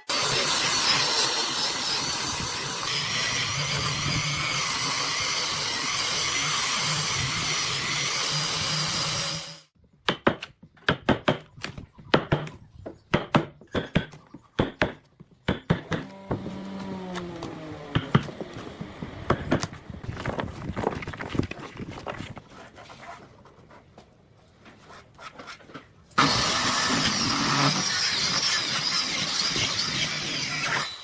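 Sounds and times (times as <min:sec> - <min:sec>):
power tool running: 0:00.0 - 0:09.7, 0:15.9 - 0:19.3, 0:26.2 - 0:31.0.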